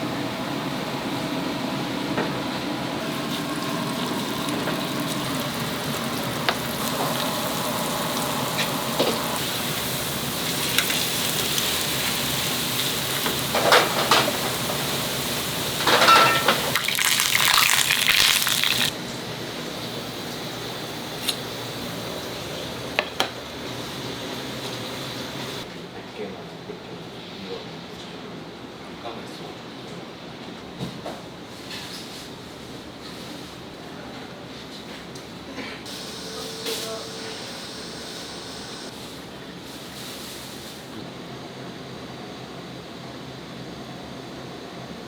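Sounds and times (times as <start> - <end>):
steady watery hiss: 3.0 - 13.6
kitchenware clinking and clattering: 15.8 - 18.9.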